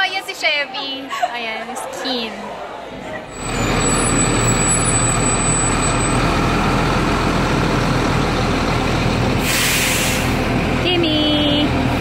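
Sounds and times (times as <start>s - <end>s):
bus engine running: 3.3s - 12.0s.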